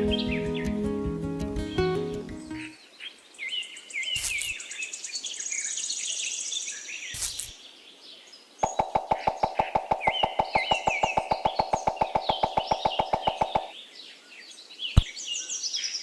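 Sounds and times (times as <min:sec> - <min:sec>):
birds chirping with high trill: 0:00.0 - 0:00.9, 0:01.6 - 0:16.0
short bursts of noise: 0:04.2 - 0:04.6.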